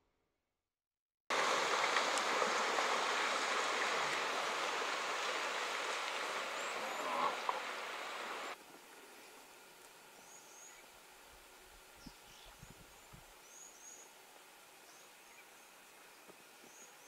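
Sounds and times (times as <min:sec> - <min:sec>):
animals splashing through water: 0:01.3 - 0:08.6.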